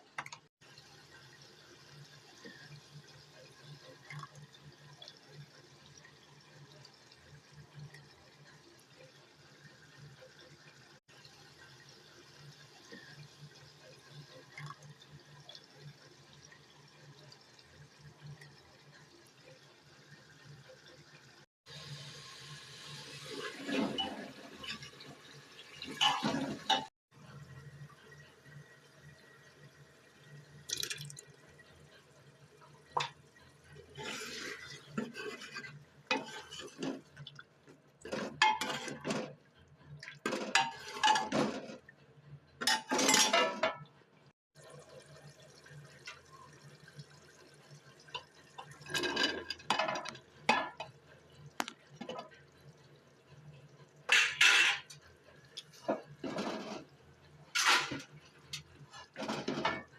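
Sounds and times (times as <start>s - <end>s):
dishes clinking: 25.9s - 26.9s, 38.1s - 39.3s, 40.2s - 41.8s, 42.6s - 43.8s, 48.8s - 50.9s, 54.1s - 55.0s, 57.6s - 59.9s.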